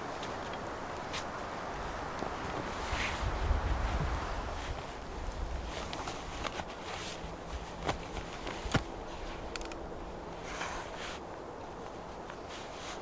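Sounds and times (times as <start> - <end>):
footsteps outdoors: 0.0 - 13.0
sharp snaps and cracks: 5.3 - 9.9.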